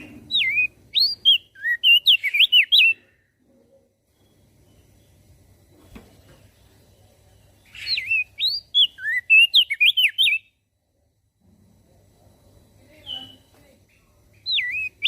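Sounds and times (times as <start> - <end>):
bird singing whistled notes: 0.0 - 3.1, 7.6 - 10.6, 12.9 - 13.5, 14.4 - 15.0
faint low hum: 0.0 - 15.0.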